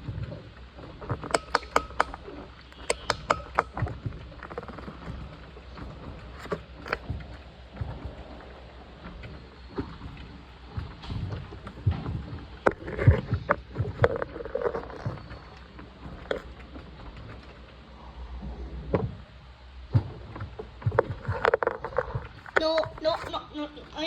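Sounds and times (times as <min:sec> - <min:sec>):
knocks and clatters: 0:00.0 - 0:08.3.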